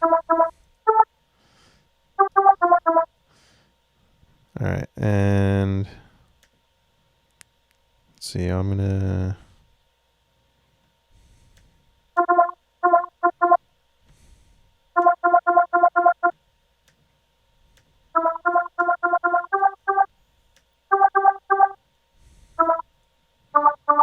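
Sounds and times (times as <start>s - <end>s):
synthesizer staccato lead notes: 0.0s - 1.0s, 2.2s - 3.1s, 12.2s - 13.6s, 15.0s - 16.3s, 18.2s - 20.1s, 20.9s - 21.8s, 22.6s - 22.8s, 23.6s - 24.0s.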